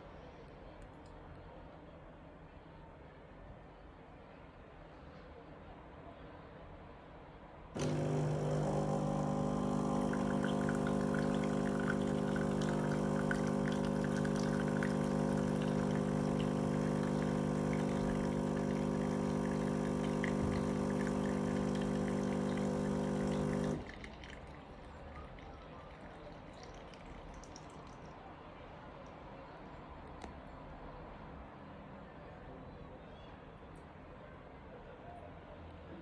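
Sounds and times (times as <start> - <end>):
coffee maker pump humming: 7.8 - 28.0
coffee trickling into cup: 7.8 - 28.1
faint drip: 7.8 - 28.2.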